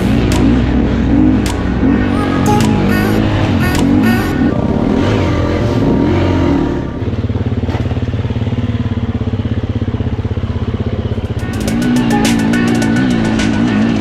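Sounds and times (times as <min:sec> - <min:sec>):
motorcycle engine revving: 0:03.2 - 0:14.0.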